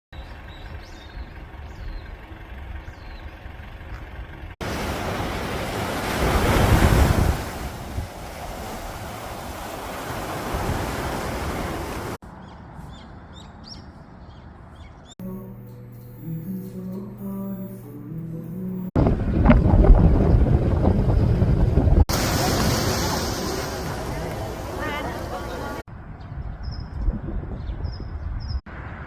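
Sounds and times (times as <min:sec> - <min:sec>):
surf washing on a beach: 0:04.6 - 0:12.2, 0:20.9 - 0:25.8.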